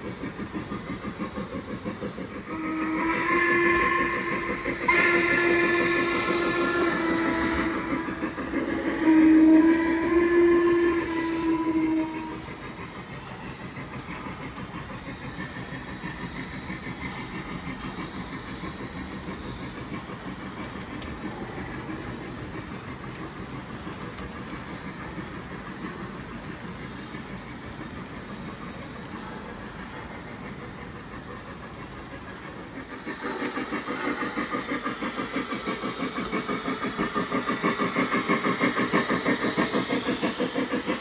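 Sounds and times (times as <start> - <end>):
model train rolling: 0.0 - 41.0
model train whistle: 2.5 - 12.6.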